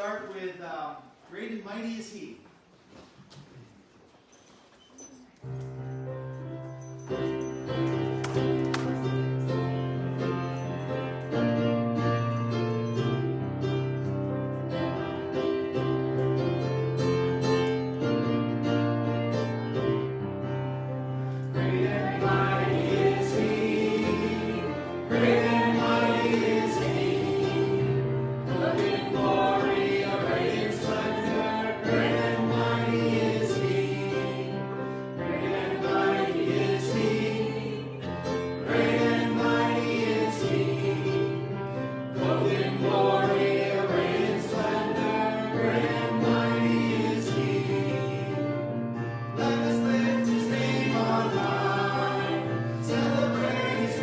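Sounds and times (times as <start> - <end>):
keyboard accompaniment: 5.5 - 54.0
group singing worship song: 21.2 - 54.0.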